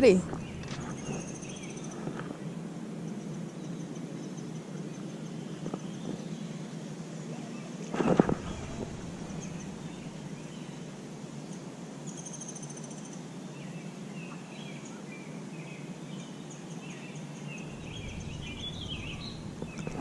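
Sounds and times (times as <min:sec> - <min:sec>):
low background noise: 0:00.0 - 0:20.0
faint bird chirps: 0:07.6 - 0:12.9, 0:17.0 - 0:20.0.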